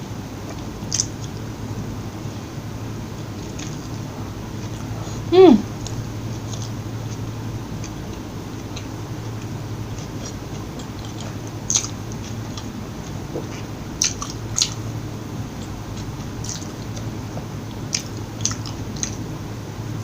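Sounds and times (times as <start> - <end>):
chewing with sharp crunches: 0.4 - 1.4, 3.2 - 19.4.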